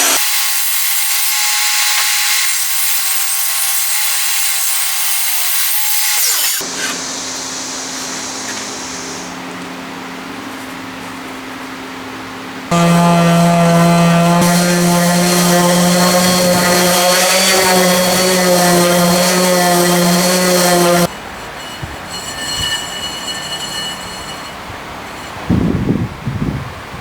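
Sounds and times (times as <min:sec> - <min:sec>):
power tool motor running: 0:12.7 - 0:21.1.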